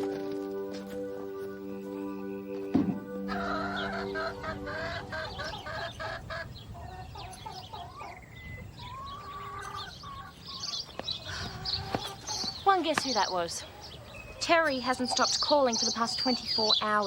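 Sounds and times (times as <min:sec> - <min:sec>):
chickens clucking: 0:02.8 - 0:12.5.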